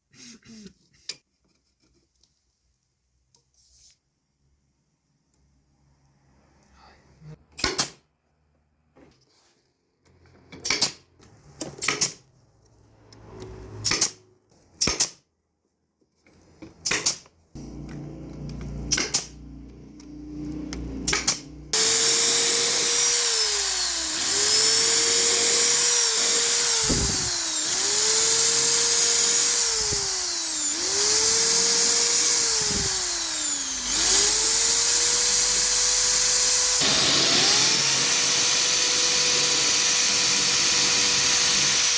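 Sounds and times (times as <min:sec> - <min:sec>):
power tool cutting wood: 0:17.6 - 0:41.9.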